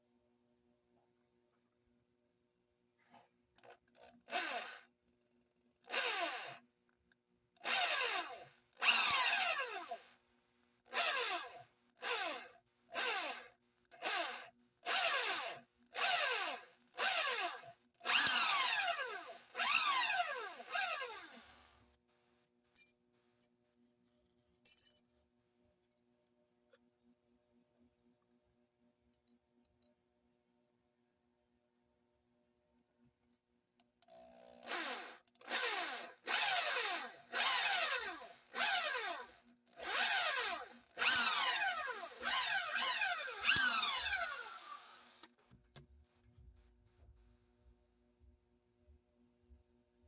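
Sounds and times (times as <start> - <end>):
electric drill drilling into steel: 4.3 - 4.8, 5.9 - 6.6, 7.6 - 10.1, 10.9 - 21.8, 34.6 - 45.3.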